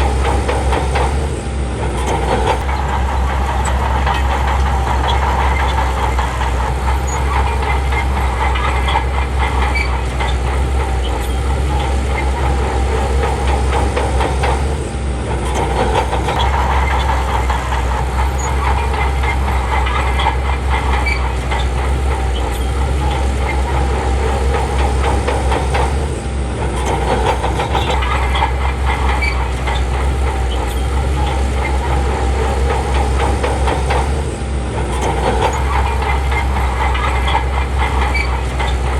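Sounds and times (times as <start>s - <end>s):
bulldozer diesel engine running: 0.0s - 38.9s
steel tracks clanking: 0.0s - 38.9s.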